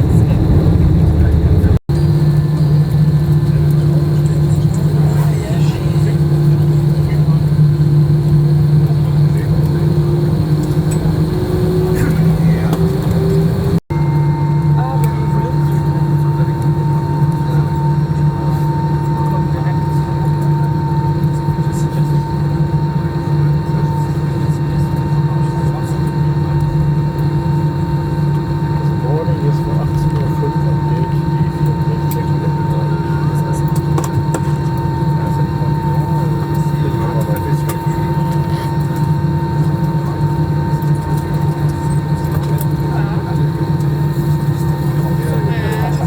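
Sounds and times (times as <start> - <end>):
steady tones: 0.0 - 2.3
jet engine hum in cabin: 0.0 - 46.0.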